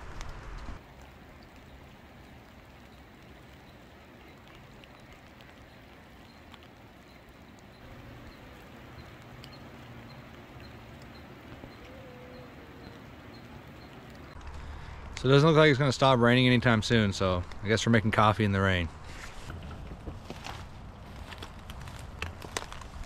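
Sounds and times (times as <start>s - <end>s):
rain falling: 0.0s - 18.4s
faint ticks: 0.2s - 15.2s.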